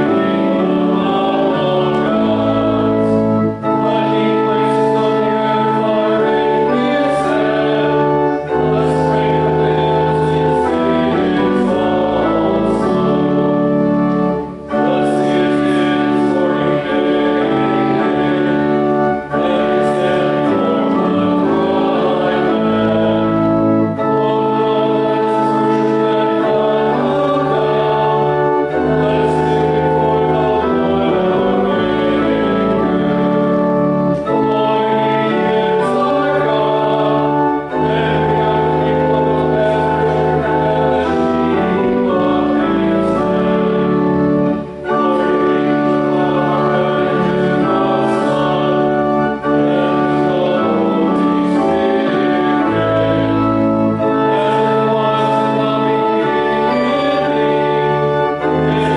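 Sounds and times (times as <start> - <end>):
church organ chords: 0.0 - 58.9
congregation singing a hymn: 0.0 - 58.9.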